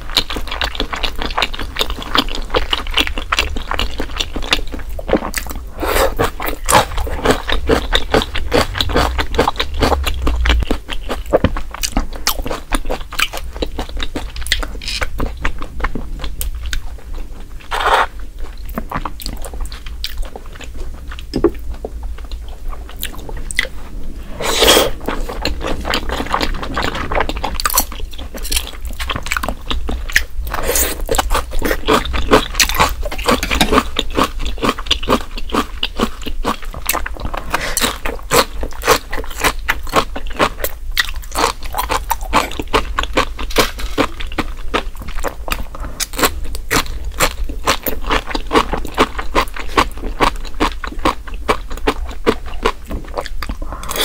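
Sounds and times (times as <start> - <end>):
wet chewing and biting: 24.6 - 54.0.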